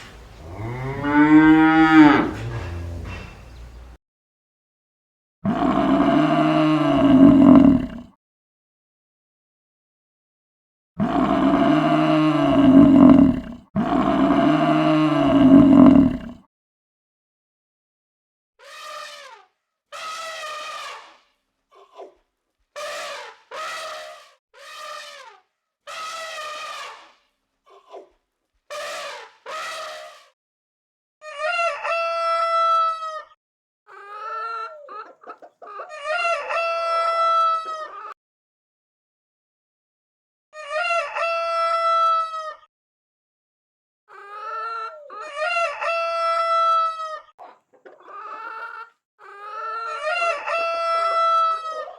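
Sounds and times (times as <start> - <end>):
large animal calling loudly: 0.0 - 4.0, 5.6 - 8.0, 11.0 - 16.3
rooster crowing: 0.0 - 4.0.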